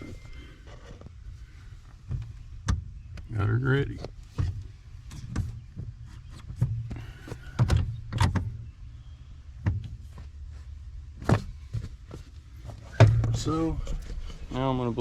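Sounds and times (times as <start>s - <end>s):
low hum: 12.5s - 15.0s.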